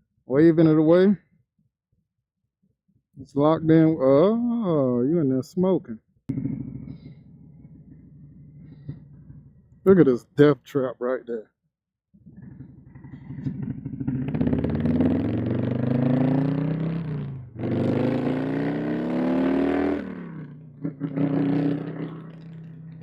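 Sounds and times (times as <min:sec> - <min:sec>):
motorcycle engine idling: 0:06.3 - 0:09.8, 0:12.3 - 0:15.0
motorcycle engine accelerating: 0:06.3 - 0:10.2, 0:12.2 - 0:23.0.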